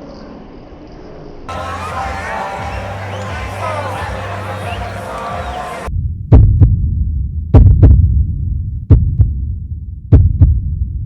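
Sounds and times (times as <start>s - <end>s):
steady low rumble: 5.8s - 11.0s
heartbeat double thumps: 5.9s - 11.0s.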